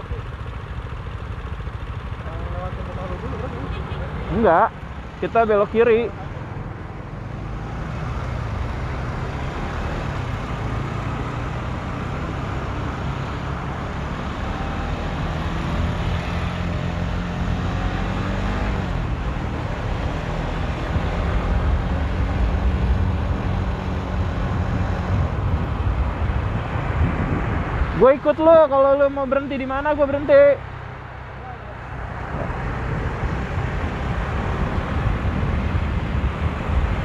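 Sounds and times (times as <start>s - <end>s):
motorcycle engine cruising: 0.0s - 37.0s
road and wind noise: 0.0s - 37.0s.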